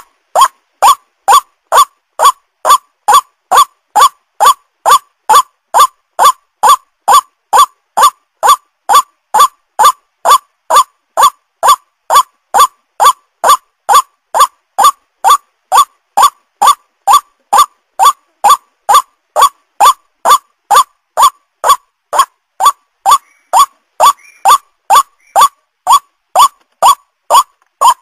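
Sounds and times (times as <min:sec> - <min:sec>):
waterhen calling: 0:00.0 - 0:28.0.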